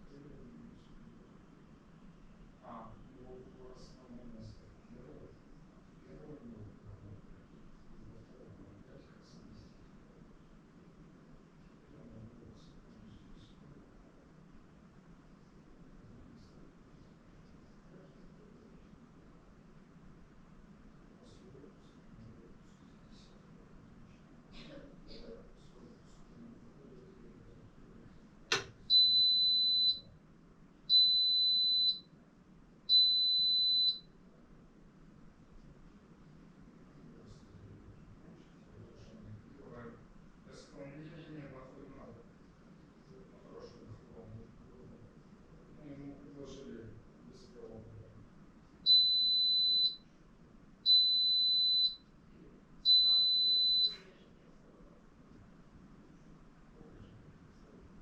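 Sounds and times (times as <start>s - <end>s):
sharp click: 28.5s - 28.8s
washing machine beeps: 28.5s - 30.1s, 30.9s - 32.1s, 32.9s - 34.1s, 48.9s - 50.0s, 50.8s - 52.0s, 52.8s - 54.1s.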